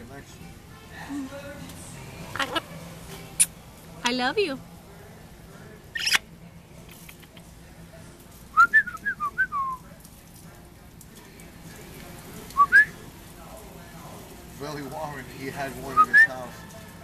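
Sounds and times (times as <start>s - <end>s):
harsh parrot squawk: 2.4s - 2.6s, 6.0s - 6.2s
parrot whistling: 6.0s - 6.2s, 12.6s - 12.9s, 15.9s - 16.5s.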